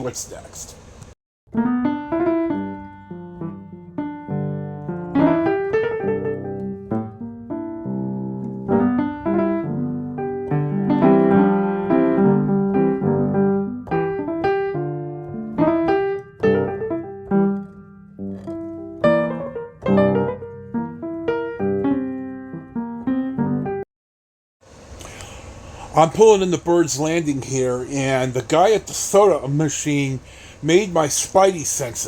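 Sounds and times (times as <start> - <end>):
piano music: 1.5 - 23.9.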